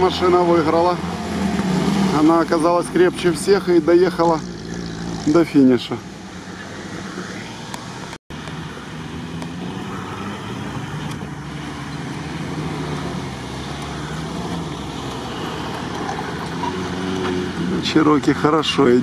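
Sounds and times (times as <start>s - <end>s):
off-road engines running: 0.0s - 19.0s.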